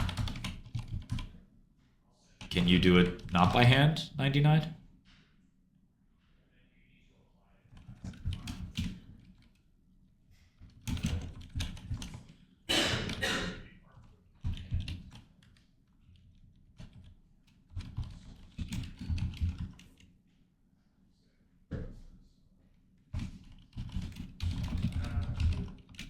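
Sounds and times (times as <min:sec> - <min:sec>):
typing on a keyboard: 0:00.0 - 0:01.4, 0:02.4 - 0:03.6, 0:07.7 - 0:09.6, 0:10.6 - 0:12.4, 0:13.9 - 0:20.1, 0:23.1 - 0:26.0.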